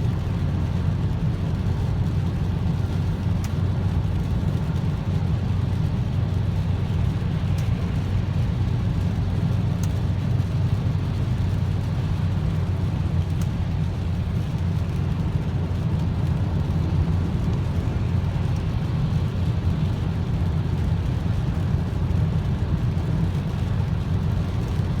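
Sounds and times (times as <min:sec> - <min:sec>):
faint ticks: 0:09.8 - 0:10.0.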